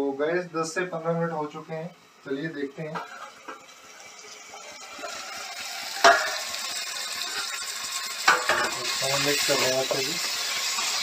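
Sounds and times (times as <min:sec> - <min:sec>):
vegetables sizzling in a pan: 0:00.5 - 0:11.0
sharp knock against pan: 0:06.0 - 0:06.4.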